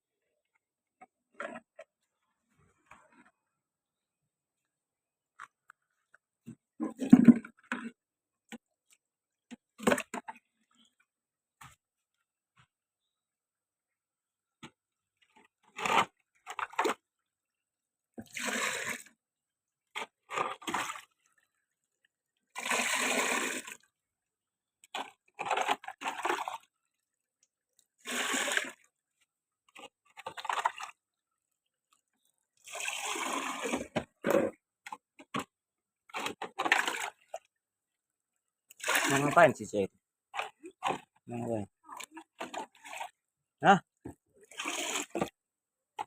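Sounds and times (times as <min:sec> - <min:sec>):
water splashing in short pours: 0:18.2 - 0:19.1, 0:20.0 - 0:21.6, 0:22.4 - 0:23.9, 0:24.8 - 0:27.1, 0:28.0 - 0:28.9, 0:29.8 - 0:31.0, 0:32.6 - 0:34.1, 0:36.1 - 0:37.5, 0:38.7 - 0:43.2, 0:44.4 - 0:45.4.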